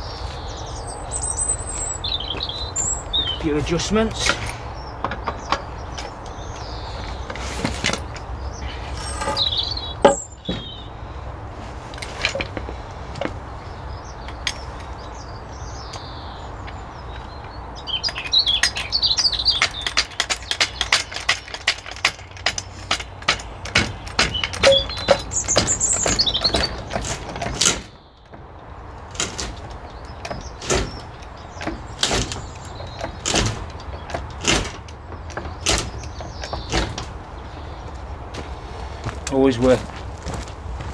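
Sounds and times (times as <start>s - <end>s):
knocks clicks and rattles: 3.6s - 10.8s, 16.6s - 37.8s.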